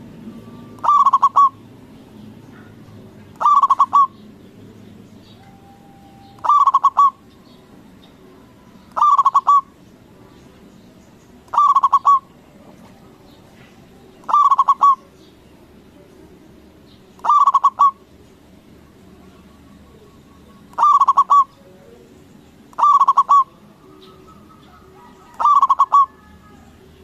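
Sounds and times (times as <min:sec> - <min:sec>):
dove cooing: 0:00.0 - 0:01.8, 0:02.5 - 0:04.2, 0:05.4 - 0:07.3, 0:08.9 - 0:09.8, 0:11.5 - 0:15.2, 0:17.2 - 0:18.1, 0:18.9 - 0:22.1, 0:22.7 - 0:27.0.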